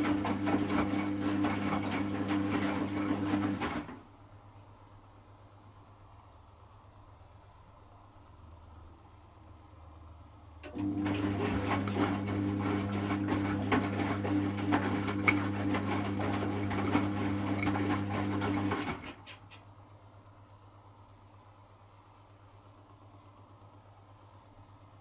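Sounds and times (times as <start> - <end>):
washing machine drain pump humming: 0.0 - 4.2, 10.4 - 25.0.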